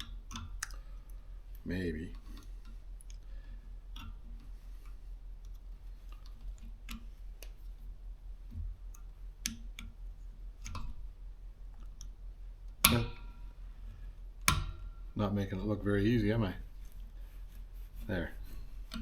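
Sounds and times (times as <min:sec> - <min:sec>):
low steady hum: 0:00.0 - 0:19.0
tools clicking and tapping: 0:12.7 - 0:13.5, 0:14.4 - 0:14.9.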